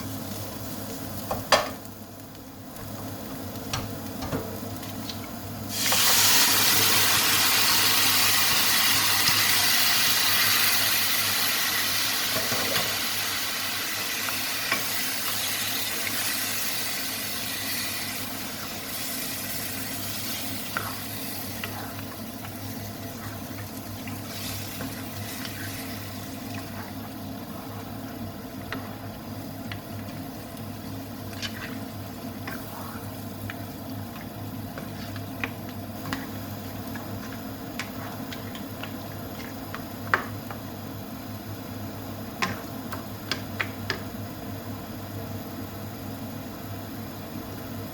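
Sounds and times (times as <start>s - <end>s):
food sizzling in oil: 4.6s - 40.0s.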